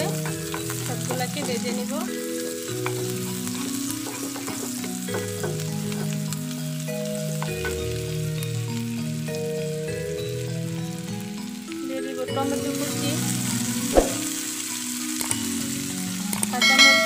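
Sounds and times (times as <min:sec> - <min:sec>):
soft background music: 0:00.0 - 0:17.0
vegetables sizzling in hot oil: 0:00.0 - 0:17.0
wooden spatula scraping a pan: 0:02.7 - 0:06.2.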